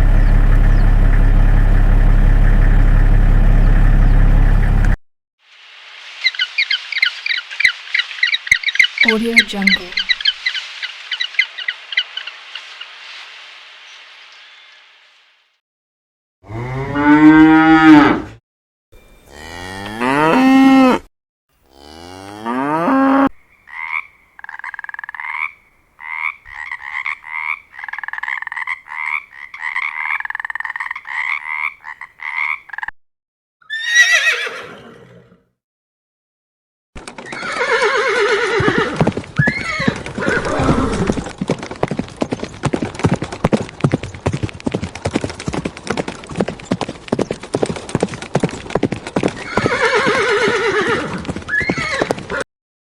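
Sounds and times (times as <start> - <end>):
cows mooing: 16.4 - 18.4, 19.3 - 21.1, 21.7 - 23.3
horse whinny: 16.5 - 18.4, 33.6 - 35.4, 37.2 - 41.3, 49.4 - 52.4
horse hoofbeats: 37.0 - 52.4.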